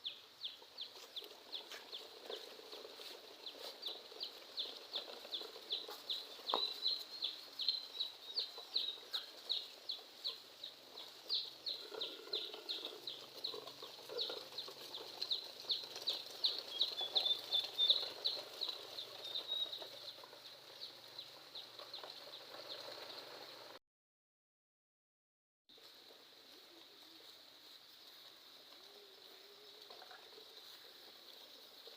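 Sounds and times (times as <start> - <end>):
chicks peeping: 0.0 - 23.2.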